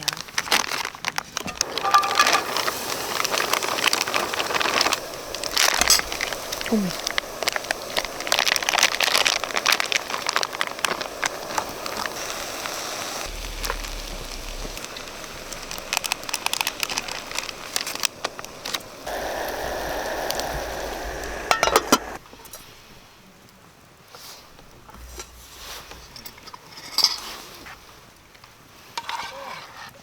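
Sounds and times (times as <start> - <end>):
food sizzling in a hot pan: 1.5 - 22.2.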